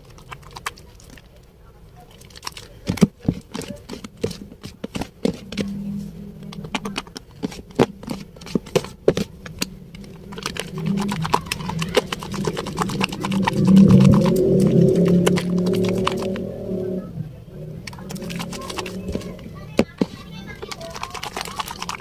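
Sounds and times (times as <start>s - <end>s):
soap lathering squelches: 0.0s - 1.4s, 2.0s - 5.7s, 7.3s - 16.5s, 17.8s - 22.0s
low droning tone: 5.6s - 6.8s, 9.6s - 19.7s.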